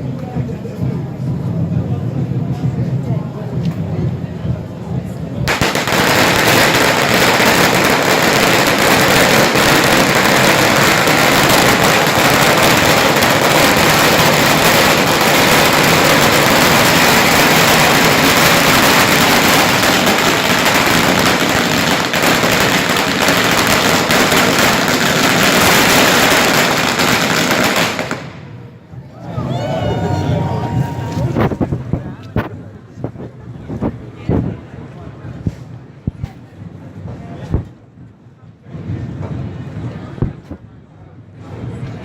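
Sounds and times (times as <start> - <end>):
firecrackers crackling: 5.4 - 28.8, 30.6 - 32.5.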